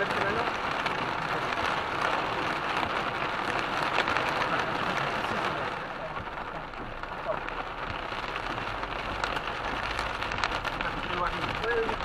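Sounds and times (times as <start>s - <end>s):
heavy rain on car roof: 0.0s - 12.0s.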